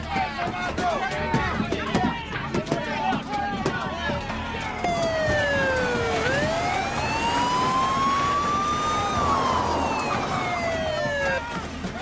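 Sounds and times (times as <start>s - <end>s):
police siren wailing: 4.6s - 12.0s.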